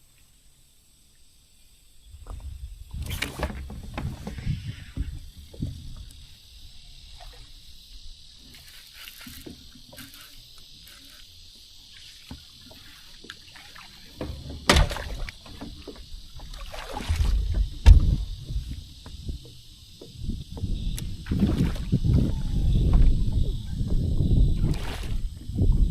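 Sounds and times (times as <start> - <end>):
kayak knocking: 2.2 - 6.3, 12.2 - 25.1
water lapping: 3.8 - 20.0, 21.2 - 25.5.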